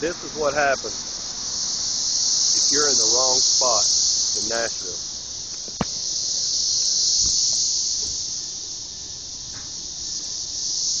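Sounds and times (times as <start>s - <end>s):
cicadas droning: 0.0s - 11.0s
sharp tap: 5.6s - 6.0s.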